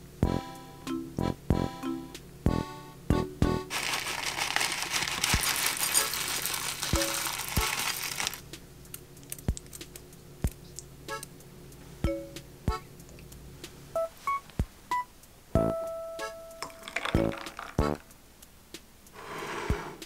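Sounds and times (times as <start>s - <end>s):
granola pouring from a bag: 3.7s - 8.4s, 16.8s - 18.0s.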